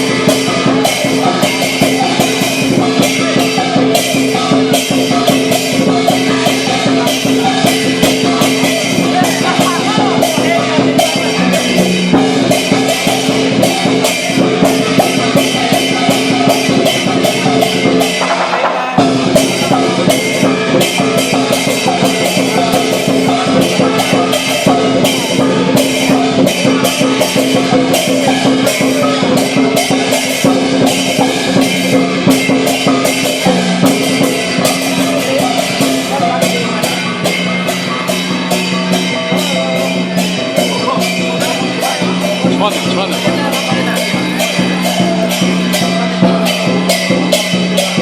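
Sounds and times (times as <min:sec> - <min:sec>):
cymbals clashing: 0:00.0 - 0:48.0
large drum beating: 0:00.0 - 0:48.0
ringing gong: 0:00.0 - 0:48.0.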